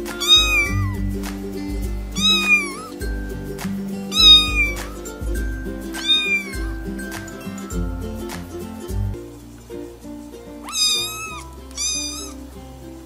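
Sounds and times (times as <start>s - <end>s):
background music: 0.0s - 13.0s
kitten mewing: 0.1s - 1.1s, 2.2s - 3.0s, 4.1s - 4.9s, 6.0s - 6.7s, 10.6s - 12.4s.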